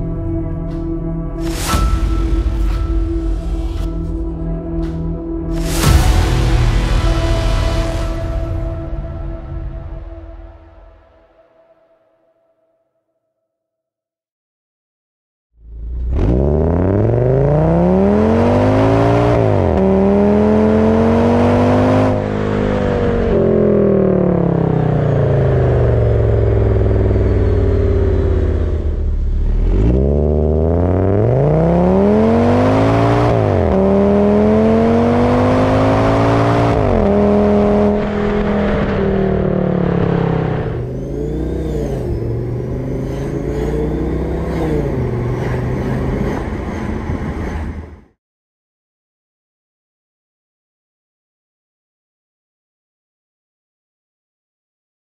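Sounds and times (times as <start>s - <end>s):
car engine accelerating hard: 15.6s - 47.9s.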